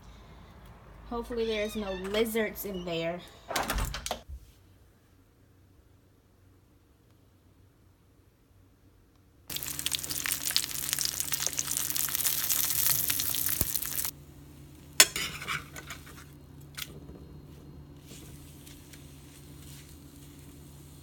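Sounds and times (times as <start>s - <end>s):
food sizzling in a frying pan: 9.5s - 14.1s.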